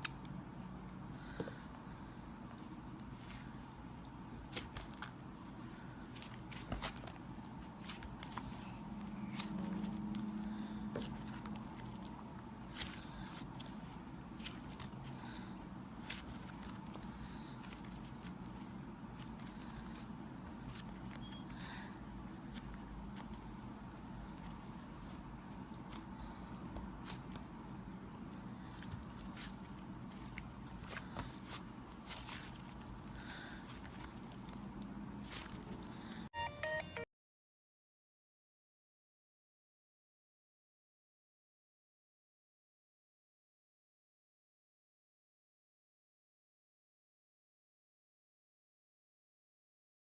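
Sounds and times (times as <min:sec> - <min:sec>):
slime squelching: 0:00.1 - 0:36.2.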